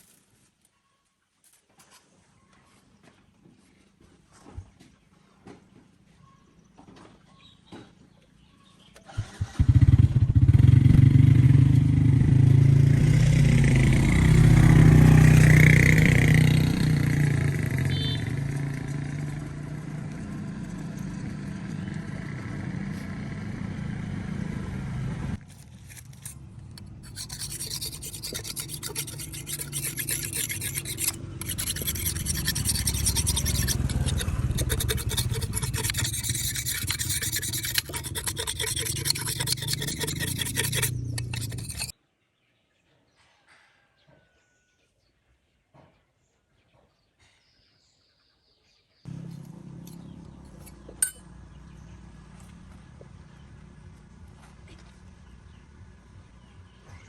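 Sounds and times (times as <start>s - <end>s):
engine running: 9.4s - 25.4s, 49.1s - 56.5s
rasping metal scrape: 25.5s - 41.9s, 49.3s - 51.2s.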